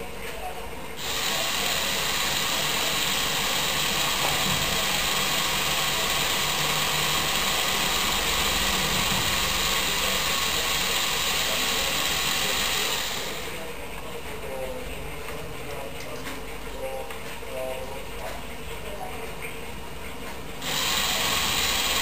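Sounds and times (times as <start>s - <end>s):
electric motors whirring: 1.0s - 13.6s, 20.6s - 22.0s.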